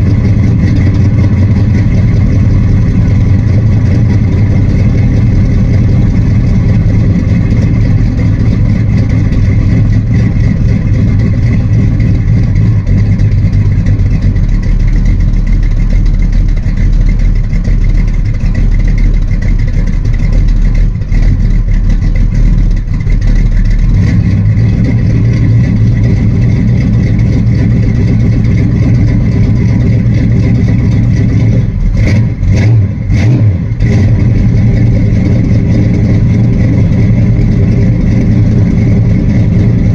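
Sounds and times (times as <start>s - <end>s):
vee eight engine running: 0.0s - 39.9s.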